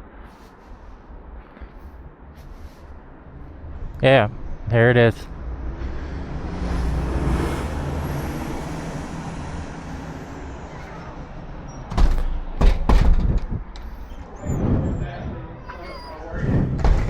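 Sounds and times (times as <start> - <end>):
loud knocks and thumps: 11.9 - 14.1, 16.4 - 17.0.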